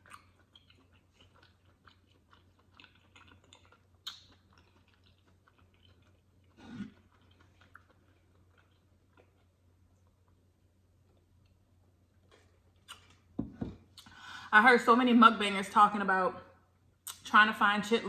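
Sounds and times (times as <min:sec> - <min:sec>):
person chewing with mouth closed: 0:00.0 - 0:14.2.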